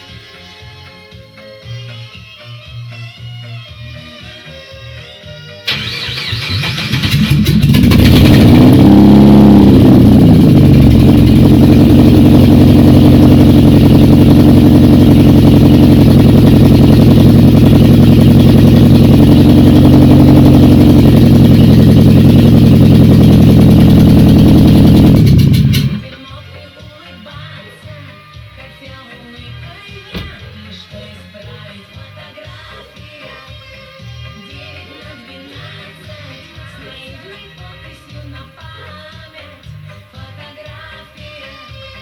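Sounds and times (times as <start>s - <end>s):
car engine starting and idling: 5.7s - 26.2s.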